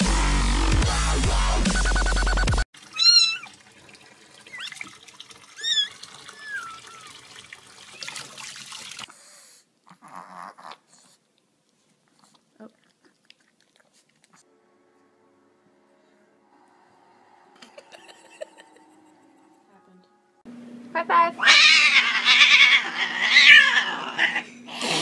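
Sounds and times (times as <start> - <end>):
cat meowing: 5.6 - 7.1, 21.4 - 24.5.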